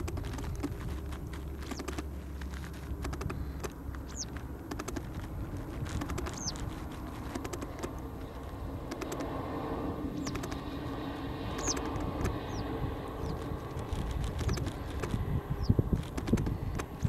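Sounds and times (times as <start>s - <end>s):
quick clicks: 0.0s - 2.1s, 2.9s - 8.0s, 8.8s - 9.3s, 10.2s - 10.7s, 11.5s - 12.6s, 13.2s - 15.2s, 15.9s - 17.0s
low rumble: 0.0s - 17.0s.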